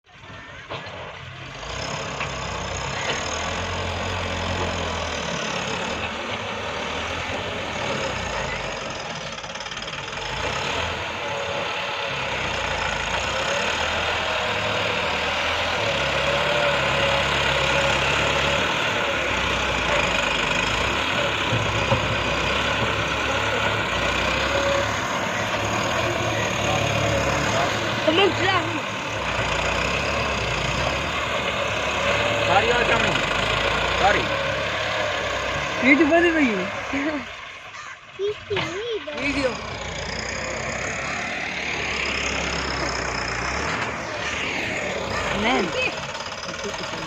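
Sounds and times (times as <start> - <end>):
tractor diesel engine revving: 0.1 - 47.0.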